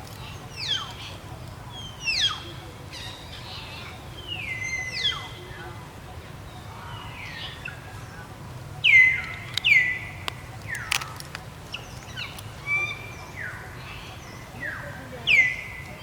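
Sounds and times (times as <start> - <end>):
sharp clicks: 9.2 - 12.6.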